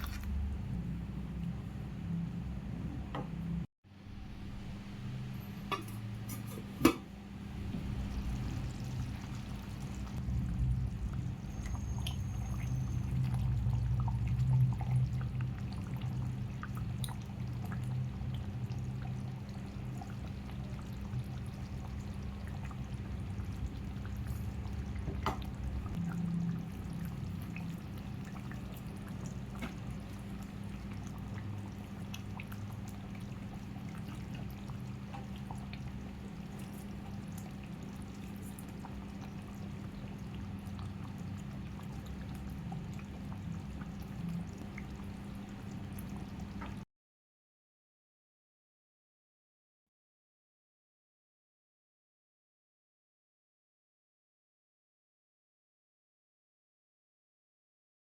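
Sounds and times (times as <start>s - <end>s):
liquid cooking in a pan: 4.3s - 46.8s.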